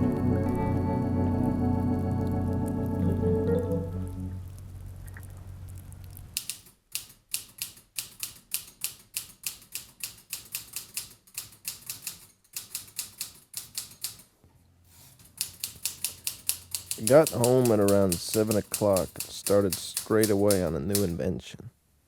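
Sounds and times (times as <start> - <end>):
typewriter keys clacking: 6.4 - 14.3, 15.2 - 21.2.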